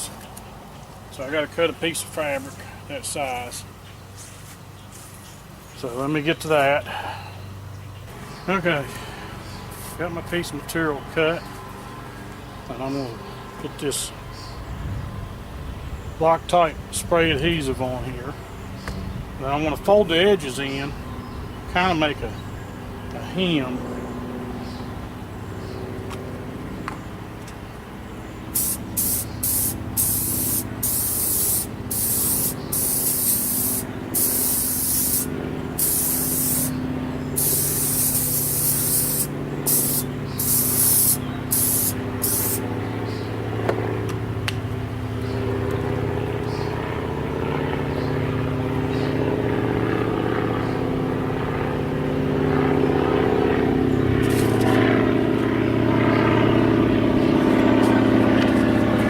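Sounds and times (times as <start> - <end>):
low steady drone: 28.1 - 59.0
aerosol spray hissing bursts: 28.6 - 36.8, 37.4 - 42.6.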